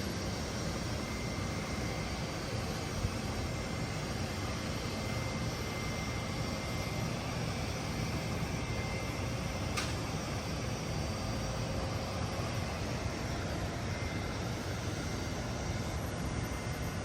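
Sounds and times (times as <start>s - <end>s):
faint high whine: 0.0s - 17.0s
jet aircraft noise: 0.0s - 17.0s
brief click: 9.8s - 10.0s.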